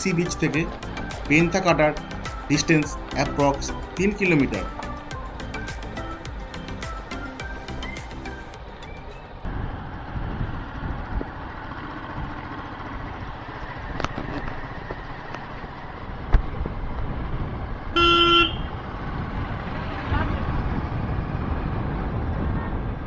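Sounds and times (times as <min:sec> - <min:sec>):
motorcycle wind and road noise: 0:09.4 - 0:23.0
vehicle horn honk: 0:18.0 - 0:18.8.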